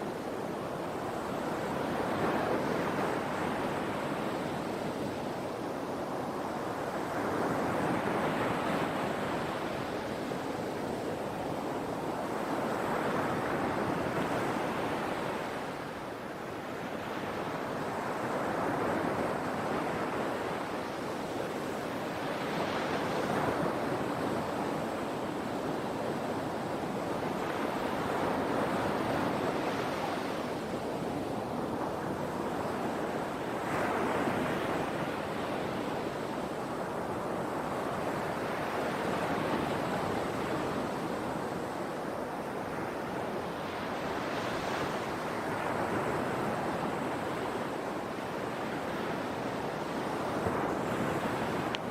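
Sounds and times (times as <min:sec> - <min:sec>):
sea waves breaking on shore: 0:00.0 - 0:51.9.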